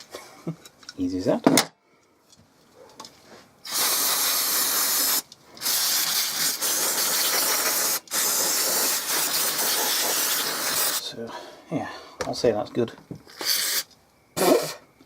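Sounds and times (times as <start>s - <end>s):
aerosol can spraying: 3.6s - 11.0s, 13.3s - 14.7s.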